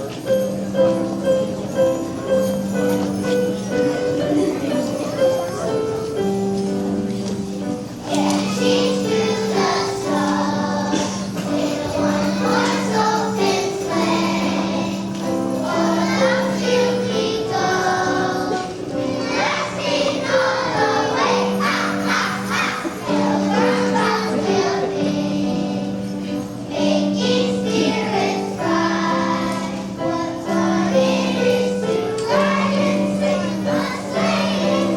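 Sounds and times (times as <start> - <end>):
instrumental accompaniment: 0.0 - 34.9
jingle bells shaking: 0.3 - 34.9
choir singing: 8.1 - 34.9.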